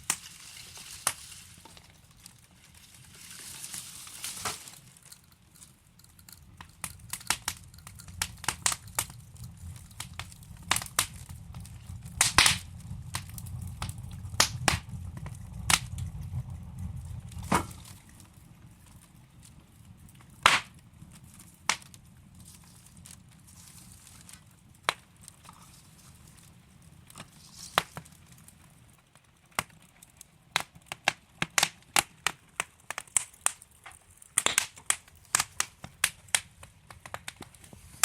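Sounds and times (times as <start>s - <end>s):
wood fire crackling: 0.0s - 38.0s
low rumble: 6.4s - 20.2s.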